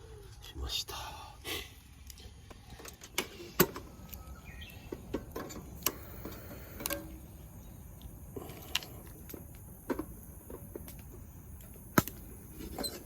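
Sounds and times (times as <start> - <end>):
high drone of insects: 0.0 - 13.0
small clicks and knocks: 4.9 - 7.2, 8.0 - 13.0.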